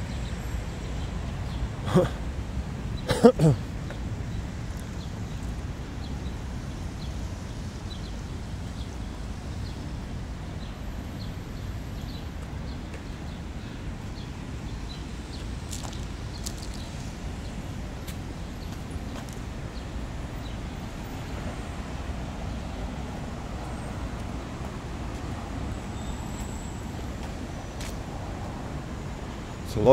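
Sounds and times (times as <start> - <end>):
low city rumble: 0.0 - 29.9.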